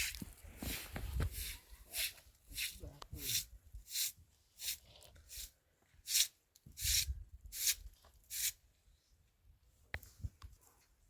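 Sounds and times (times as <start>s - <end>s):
footsteps crunching through snow: 0.0s - 1.6s.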